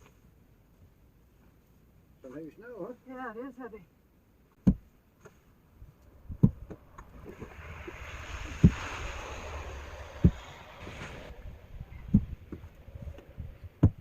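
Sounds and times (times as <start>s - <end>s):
shovel scraping snow: 7.3s - 11.5s.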